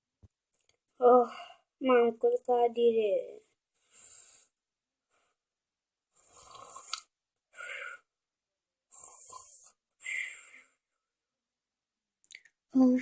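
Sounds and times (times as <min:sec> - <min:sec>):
person snoring: 0:08.9 - 0:09.8.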